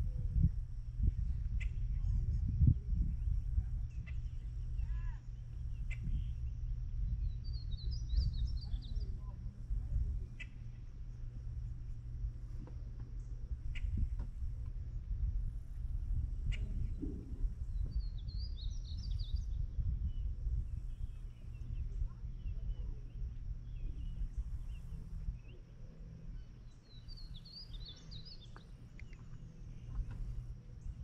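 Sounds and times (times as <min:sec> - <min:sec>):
low outdoor rumble: 0:00.0 - 0:31.0
bird chirps: 0:03.9 - 0:09.4, 0:17.7 - 0:31.0.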